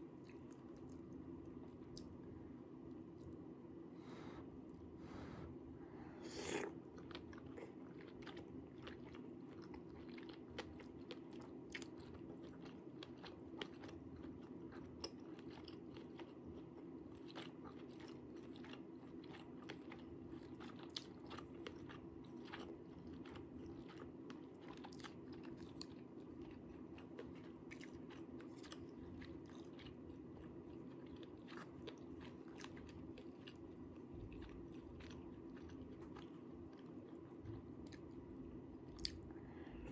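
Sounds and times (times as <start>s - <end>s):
steady low hum: 0.0s - 20.6s, 21.2s - 39.9s
person chewing: 6.2s - 38.2s, 38.8s - 39.9s.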